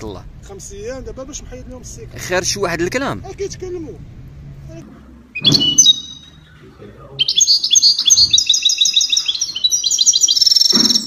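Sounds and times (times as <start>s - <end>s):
songbird chirping: 5.3s - 11.0s.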